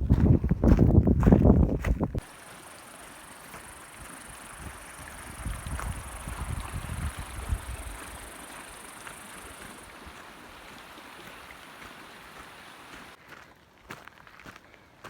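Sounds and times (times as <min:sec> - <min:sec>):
wind buffeting microphone: 0:00.0 - 0:02.2, 0:03.6 - 0:11.1
steady outdoor rush: 0:00.0 - 0:13.2
high thin hiss: 0:02.2 - 0:13.2.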